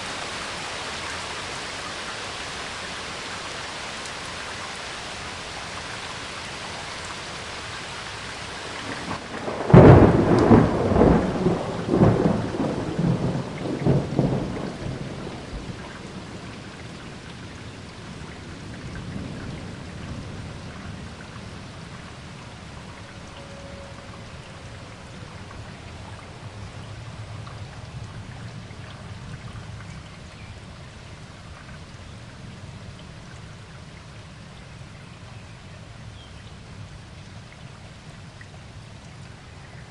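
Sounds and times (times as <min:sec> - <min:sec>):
steady rain: 0:00.0 - 0:39.9
thunder crack and rumbles: 0:08.8 - 0:17.2, 0:18.2 - 0:22.0.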